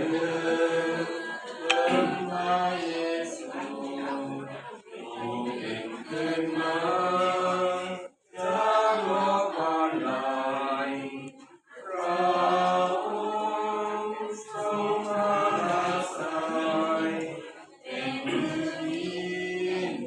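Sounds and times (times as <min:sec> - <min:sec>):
group singing a hymn: 0:00.0 - 0:20.0
sharp click with short tone: 0:01.7 - 0:02.9.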